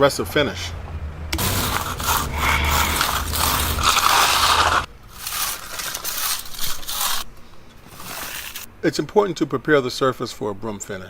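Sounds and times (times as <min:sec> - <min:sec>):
broom bristles scraping concrete: 0:01.4 - 0:08.7.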